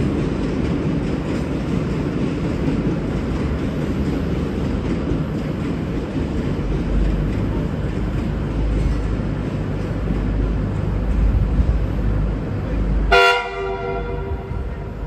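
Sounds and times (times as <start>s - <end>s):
diesel railcars rumbling by: 0.0s - 15.0s.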